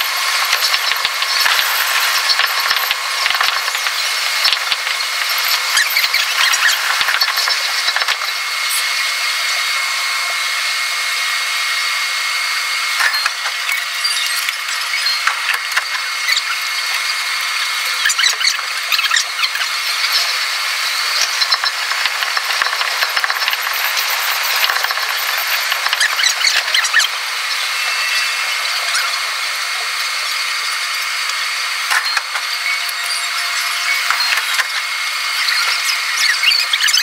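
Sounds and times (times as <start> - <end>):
wheels clicking over rails: 0.0 - 8.3, 21.1 - 27.2.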